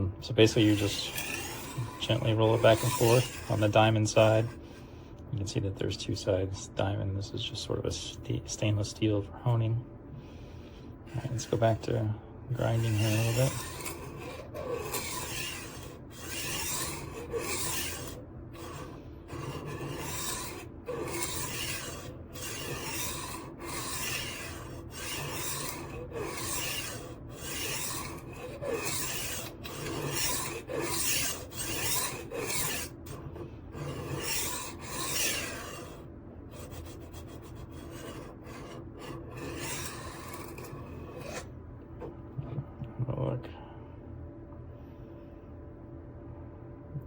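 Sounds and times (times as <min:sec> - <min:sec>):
sharpener grinding knife edge: 0:00.4 - 0:04.6, 0:12.6 - 0:41.5.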